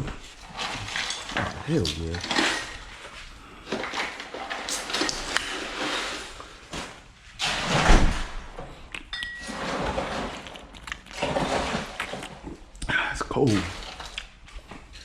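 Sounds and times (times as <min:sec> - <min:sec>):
clattering and rustling: 0:00.0 - 0:08.7, 0:09.3 - 0:12.4.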